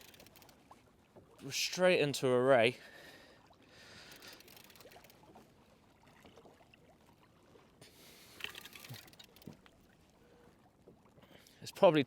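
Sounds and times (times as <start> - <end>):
faint water noise: 0.0 - 12.0.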